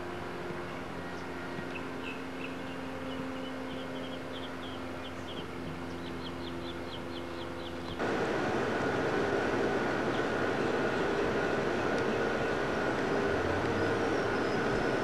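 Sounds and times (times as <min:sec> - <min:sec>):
low hum: 0:00.0 - 0:15.0
bird chirping: 0:01.1 - 0:08.0, 0:10.0 - 0:15.0.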